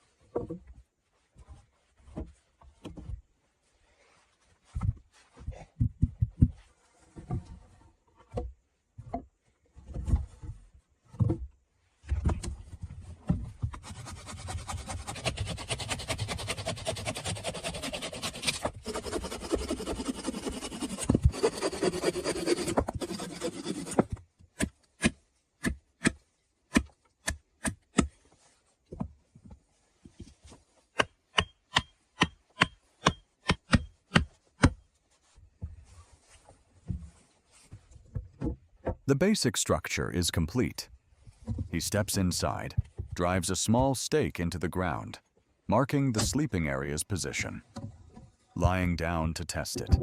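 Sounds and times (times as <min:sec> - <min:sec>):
wood being handled and knocked: 0:02.0 - 0:03.2, 0:04.6 - 0:07.6, 0:08.2 - 0:14.0
saw cutting through log: 0:13.8 - 0:24.1.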